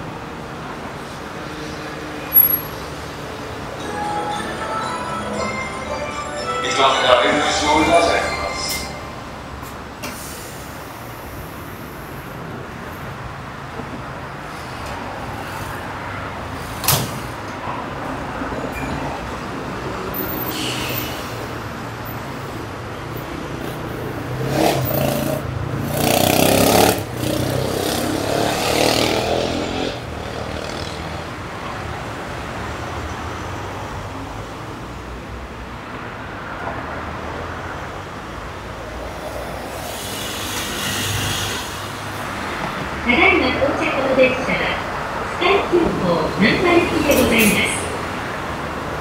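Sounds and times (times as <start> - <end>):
electric train running hum: 3.2 - 10.2.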